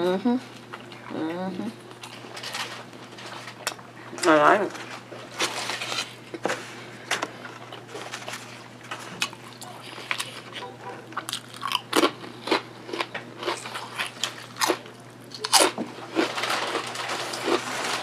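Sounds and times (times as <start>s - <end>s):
person chewing crunchy food: 7.4s - 18.0s.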